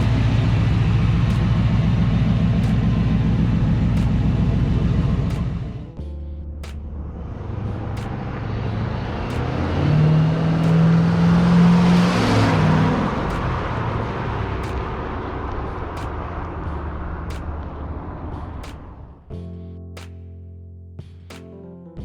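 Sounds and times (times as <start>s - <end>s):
car engine driving past: 6.8s - 19.2s.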